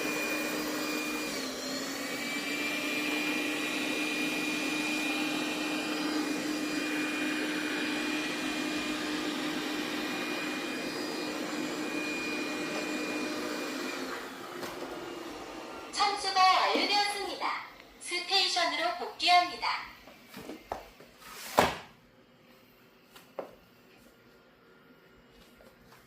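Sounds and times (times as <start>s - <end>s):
robot vacuum motor whining: 0.0s - 19.0s.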